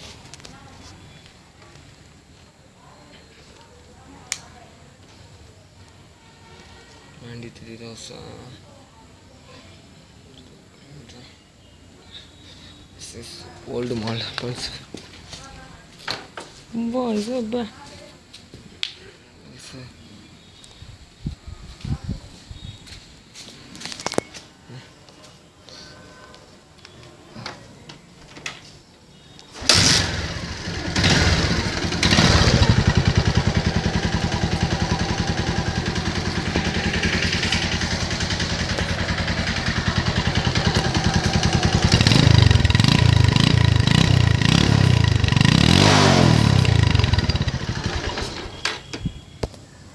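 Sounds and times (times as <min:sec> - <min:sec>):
motorcycle engine starting and revving: 0:29.6 - 0:48.9.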